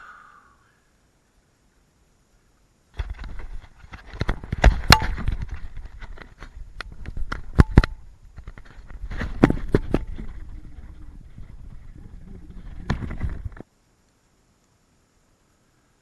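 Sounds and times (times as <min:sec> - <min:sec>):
wind and water rumble: 0:02.9 - 0:13.7
knocks and clatter on a kayak: 0:03.0 - 0:11.7, 0:12.6 - 0:13.6.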